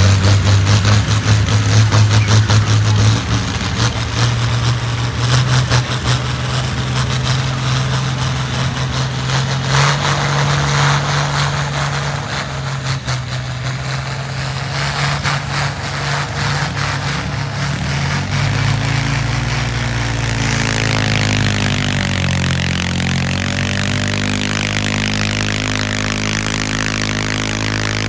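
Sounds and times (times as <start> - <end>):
tractor engine droning: 0.0 - 28.0.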